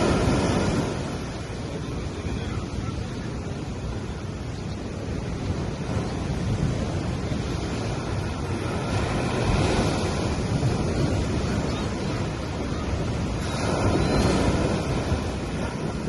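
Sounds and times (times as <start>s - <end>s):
sea waves washing on beach: 0.0s - 16.0s.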